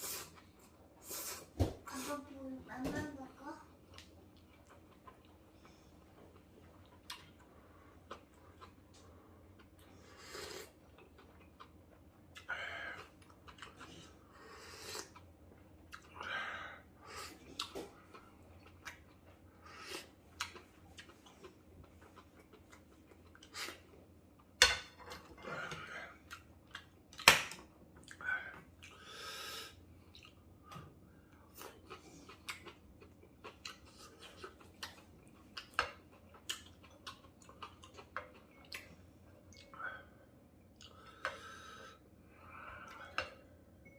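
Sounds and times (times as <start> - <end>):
chewing: 3.8 - 16.2, 17.1 - 27.3, 30.0 - 30.5, 31.4 - 39.8.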